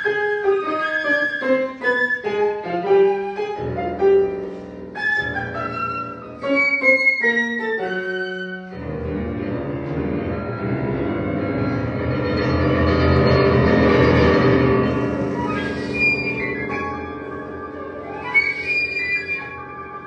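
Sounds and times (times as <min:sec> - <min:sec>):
flute melody: 0:00.0 - 0:09.0, 0:14.8 - 0:20.0
piano chords: 0:00.0 - 0:20.0.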